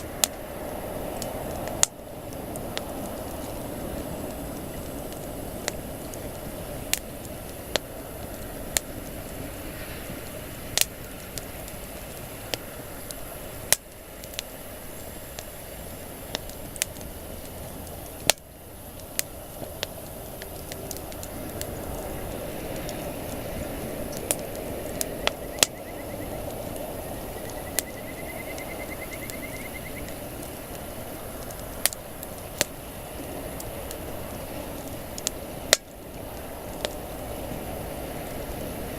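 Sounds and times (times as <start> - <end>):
campfire crackling: 0.0 - 38.9.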